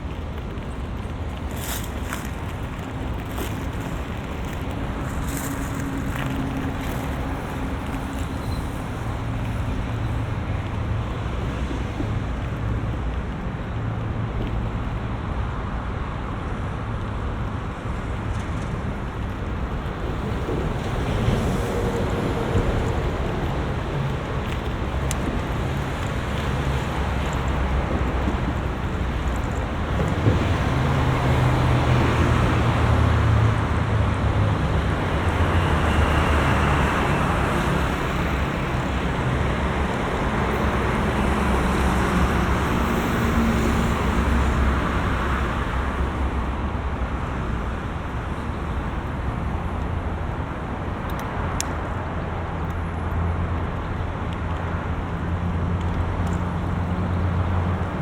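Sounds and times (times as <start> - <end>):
road traffic passing: 0.0 - 58.0.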